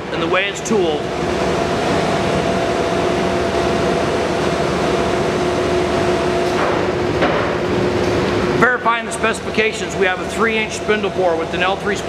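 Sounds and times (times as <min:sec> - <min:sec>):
lathe running: 0:00.0 - 0:06.6.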